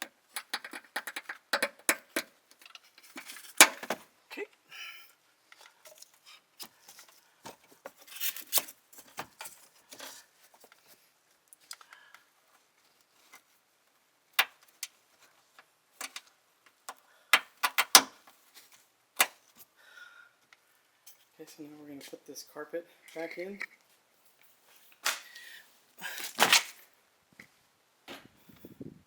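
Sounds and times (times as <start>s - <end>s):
clicks and taps handling parts: 0.0s - 4.0s, 15.6s - 18.2s.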